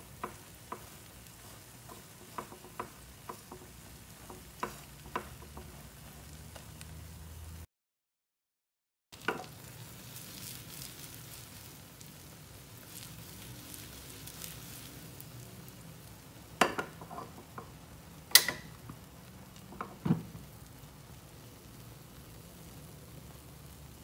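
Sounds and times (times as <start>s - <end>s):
pan knocking on stove: 0.0s - 5.9s, 16.6s - 18.8s, 19.7s - 20.5s
oil sizzling: 0.0s - 7.7s, 9.1s - 24.0s.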